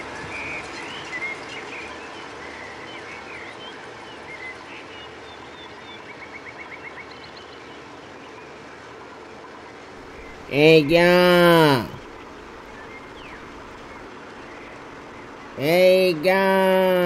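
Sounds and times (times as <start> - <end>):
small birds chirping: 10.0 - 16.3
steady background hiss: 10.0 - 17.0.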